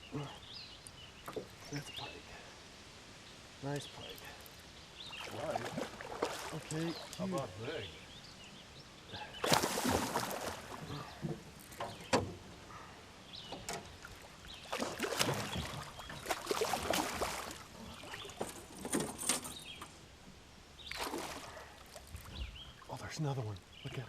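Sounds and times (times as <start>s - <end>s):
water splashes around boat: 3.7s - 7.9s, 9.1s - 19.8s, 20.8s - 24.0s.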